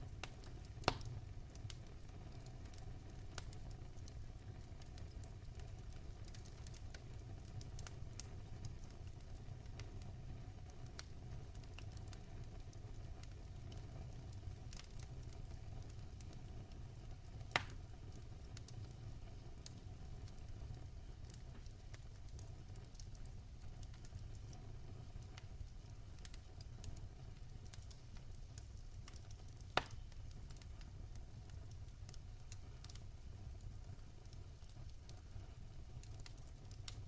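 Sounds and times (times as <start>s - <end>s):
fire rumbling: 0.0s - 37.0s
wood fire crackling: 0.0s - 37.0s
loud fire pops: 0.2s - 1.8s, 17.5s - 19.0s, 21.3s - 31.8s.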